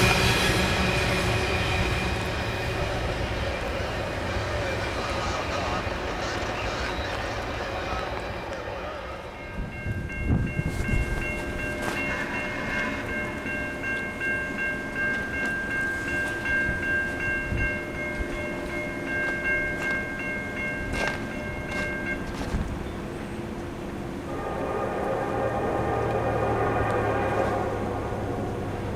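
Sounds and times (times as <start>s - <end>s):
locomotive air horn chord: 0.0s - 9.7s, 23.8s - 28.9s
train rumbling past: 0.0s - 28.9s.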